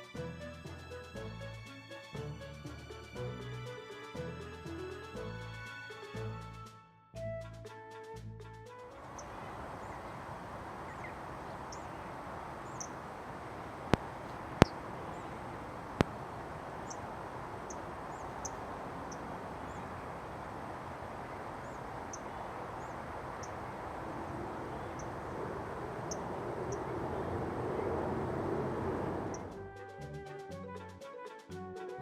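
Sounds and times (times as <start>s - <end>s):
outdoor background hiss: 0.0s - 6.8s, 9.0s - 30.9s
small birds calling: 9.0s - 29.6s.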